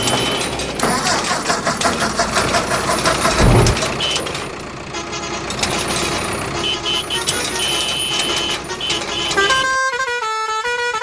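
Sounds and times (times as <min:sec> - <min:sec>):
cartoon engines running: 0:00.0 - 0:09.6
short low thud: 0:03.3 - 0:03.9.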